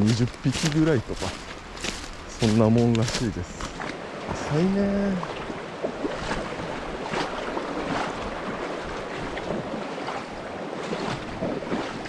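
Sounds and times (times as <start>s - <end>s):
water rushing in a stream: 0.0s - 12.0s
wind on microphone: 3.7s - 12.0s.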